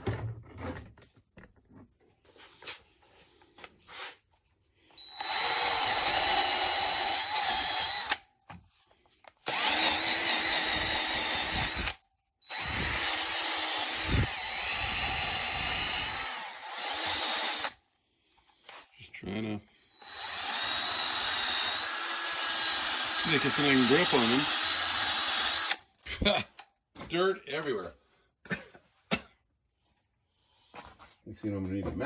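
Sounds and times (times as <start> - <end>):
electric drill running: 5.0 - 8.2, 9.4 - 17.8, 19.9 - 25.9.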